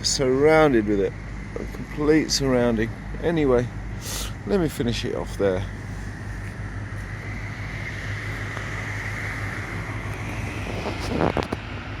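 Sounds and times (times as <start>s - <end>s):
steady low hum: 0.0s - 12.0s
wind buffeting microphone: 9.4s - 11.7s.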